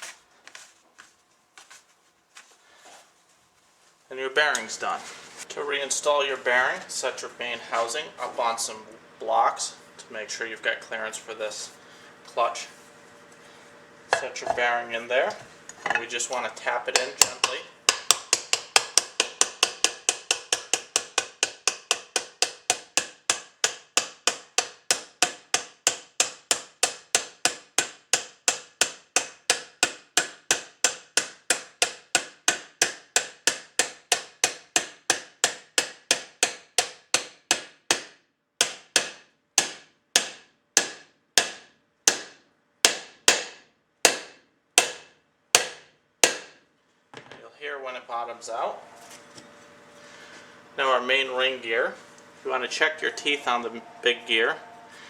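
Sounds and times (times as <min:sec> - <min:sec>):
light ringing taps on metal: 0:15.3 - 0:16.1.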